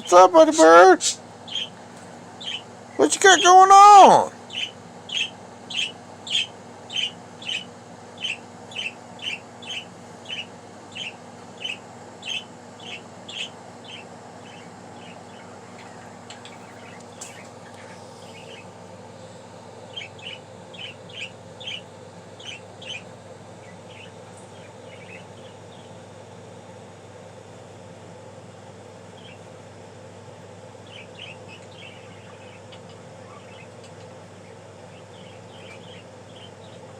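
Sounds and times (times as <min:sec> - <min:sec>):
budgie chirping: 0:00.4 - 0:01.8, 0:02.4 - 0:18.7, 0:19.9 - 0:25.9.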